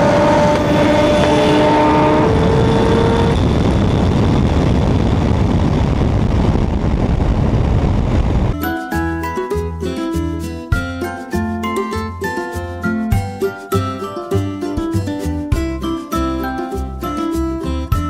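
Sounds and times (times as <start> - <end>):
whining tones: 0.0 - 6.6
car engine roaring: 0.0 - 8.5
music: 8.6 - 18.0.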